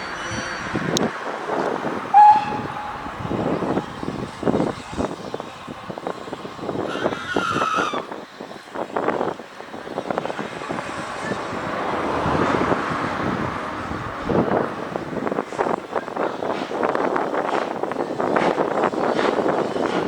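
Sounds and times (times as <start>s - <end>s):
high metallic squeal: 0.0s - 1.0s, 2.1s - 8.2s
train running past: 0.0s - 20.0s.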